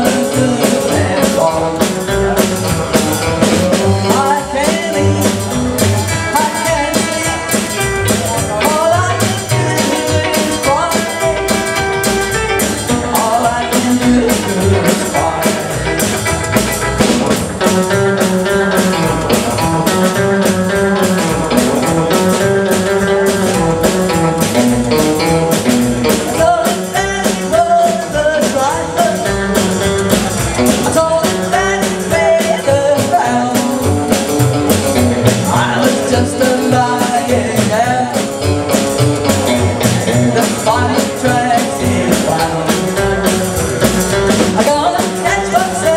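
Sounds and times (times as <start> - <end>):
drum kit beat: 0.0 - 45.9
electric guitar: 0.0 - 45.9
person singing: 0.0 - 45.9
rock and roll band playing: 0.0 - 45.9.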